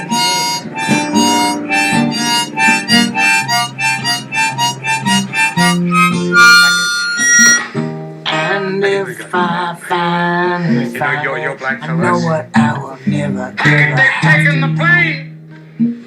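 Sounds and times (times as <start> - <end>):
harmonica playing quick notes: 0.0 - 7.8
guitar: 0.0 - 16.0.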